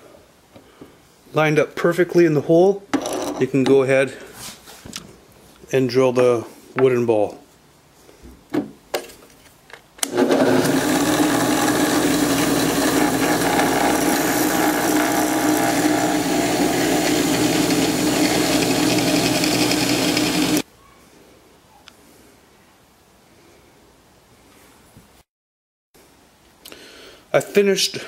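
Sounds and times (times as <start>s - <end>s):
electric drill boring wood: 10.0s - 20.6s.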